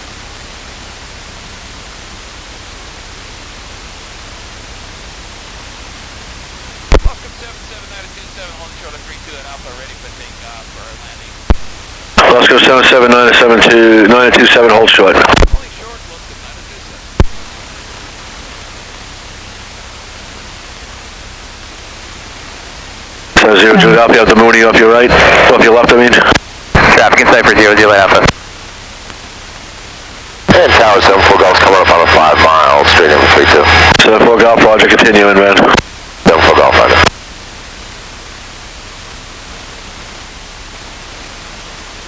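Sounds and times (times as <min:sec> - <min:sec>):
faint low rumble: 0:00.0 - 0:42.0
radio intercom hiss: 0:06.6 - 0:42.0
radio click: 0:06.9 - 0:07.2, 0:15.1 - 0:15.6, 0:17.2 - 0:17.4.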